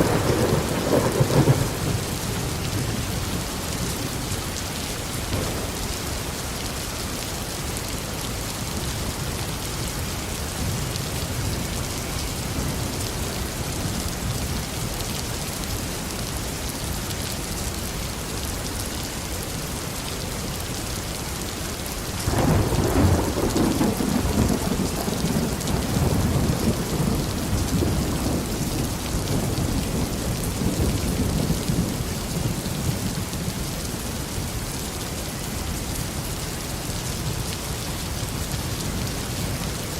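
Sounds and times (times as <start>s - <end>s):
thunder rumbling: 0.0s - 3.8s, 5.3s - 6.7s, 22.3s - 32.6s
heavy rain falling: 0.0s - 39.9s.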